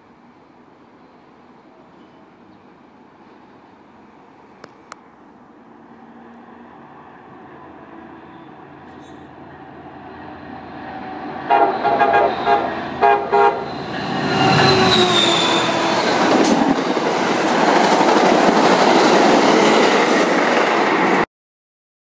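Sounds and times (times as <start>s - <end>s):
train passing over rails: 0.0s - 21.3s
train horn blasts: 11.4s - 16.0s.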